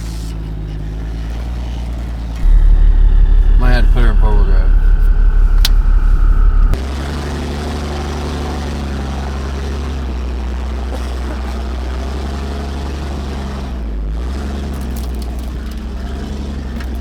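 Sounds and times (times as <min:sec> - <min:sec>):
diesel truck engine under load: 0:02.4 - 0:06.8.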